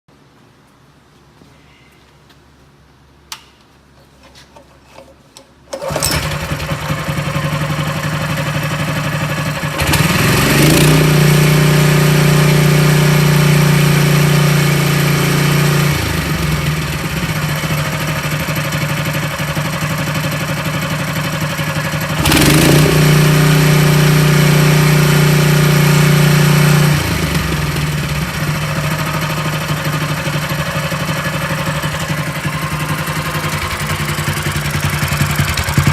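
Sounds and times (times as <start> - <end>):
engine starting and idling: 5.7 - 35.9
engine revving: 6.0 - 19.8, 21.2 - 35.9.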